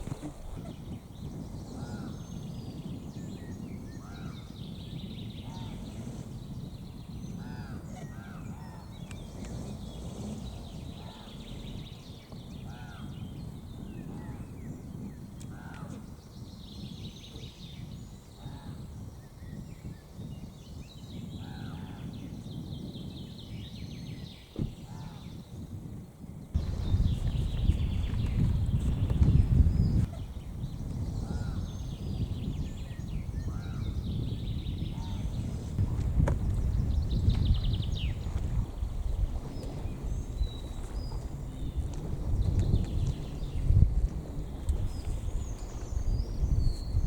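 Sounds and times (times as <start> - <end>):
higher bird chirping: 0.0 - 20.0, 26.6 - 35.9
steady low rumble: 26.6 - 47.0.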